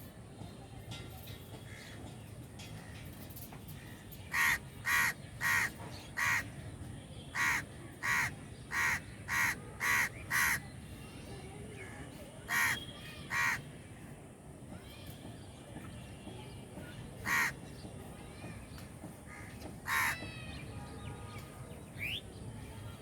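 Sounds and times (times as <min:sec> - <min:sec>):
crows cawing: 0:04.3 - 0:06.4, 0:07.4 - 0:10.6, 0:12.5 - 0:13.6, 0:17.2 - 0:17.6, 0:19.3 - 0:20.2.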